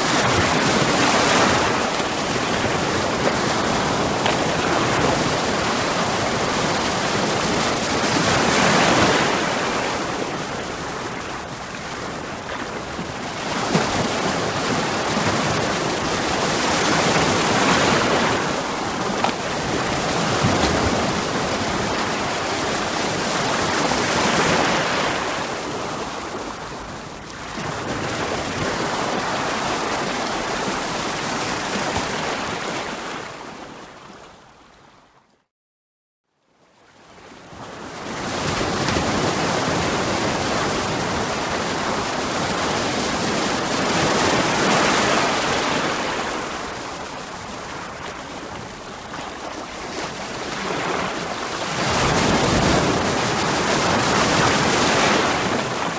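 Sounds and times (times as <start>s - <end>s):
sea waves breaking on rocks: 0.0s - 26.3s, 38.2s - 55.9s.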